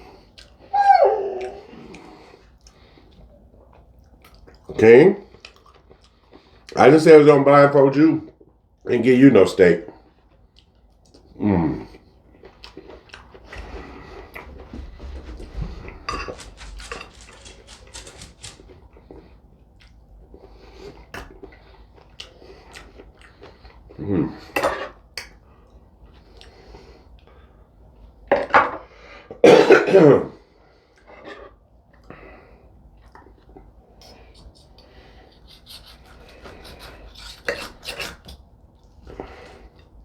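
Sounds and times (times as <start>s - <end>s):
person coughing: 29.4s - 30.3s
cutlery scraping a plate: 35.5s - 38.4s.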